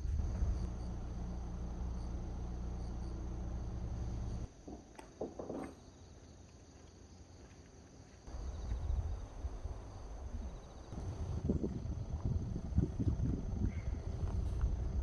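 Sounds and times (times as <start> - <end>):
insects trilling: 0.0 - 4.5, 5.7 - 15.0
low rumble: 0.0 - 4.5, 8.3 - 15.0.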